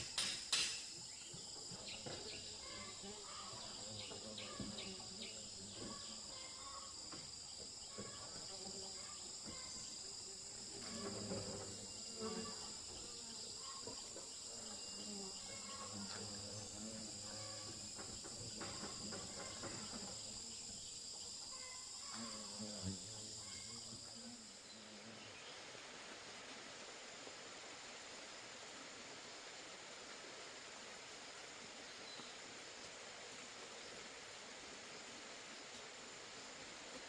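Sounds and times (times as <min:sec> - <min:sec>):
small knocks and rustles: 0:00.0 - 0:02.5, 0:10.7 - 0:13.0, 0:17.6 - 0:20.4
insects chirping: 0:00.0 - 0:37.0.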